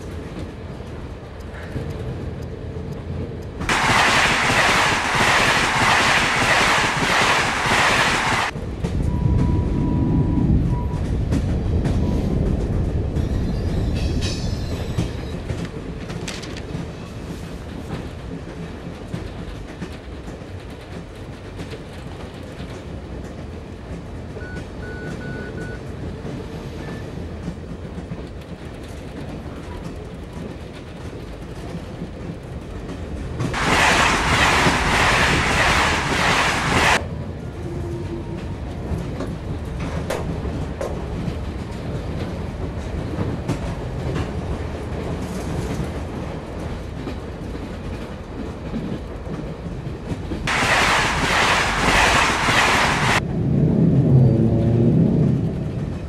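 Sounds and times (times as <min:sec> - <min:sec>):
train rumble: 0:00.0 - 0:56.0
wheels clickety-clack over rail joints: 0:00.0 - 0:56.0
loud rushing noise: 0:03.7 - 0:08.6, 0:33.6 - 0:37.0, 0:50.5 - 0:54.0.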